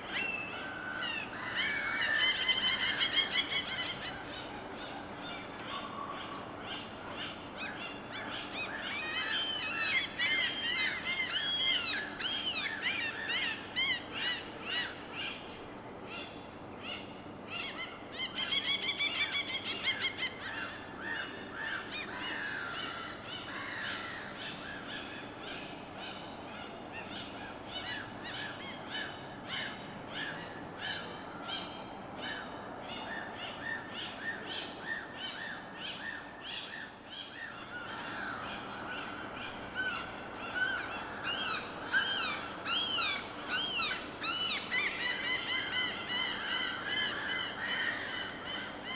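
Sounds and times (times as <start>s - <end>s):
water and harbor ambience: 0.0s - 48.9s
birds calling and chirping: 16.2s - 48.9s.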